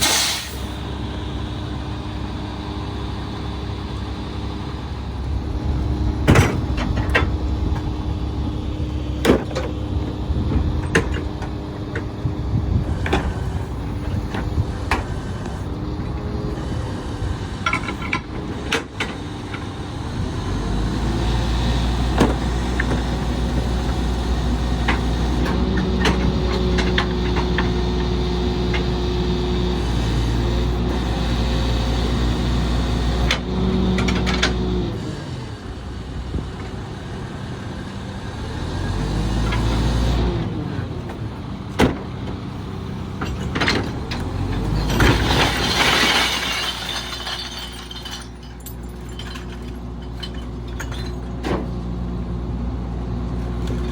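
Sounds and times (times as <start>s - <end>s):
knocks and clanks: 6.2s - 7.9s.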